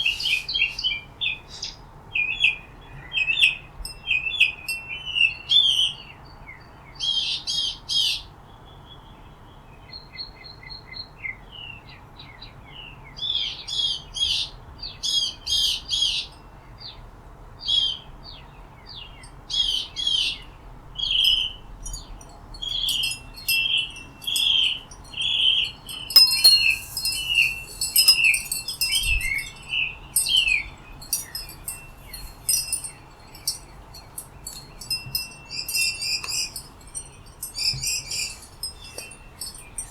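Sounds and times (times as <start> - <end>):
small birds chirping: 0.0 - 2.4, 18.3 - 39.9.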